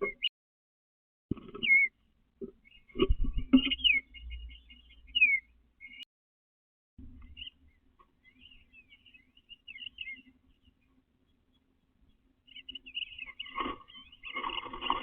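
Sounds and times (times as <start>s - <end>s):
birds chirping: 0.0s - 0.3s, 1.3s - 6.1s, 7.0s - 15.0s.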